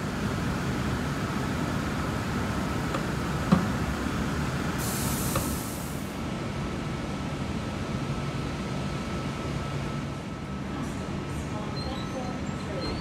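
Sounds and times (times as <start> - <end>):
air hiss: 4.8 - 6.1.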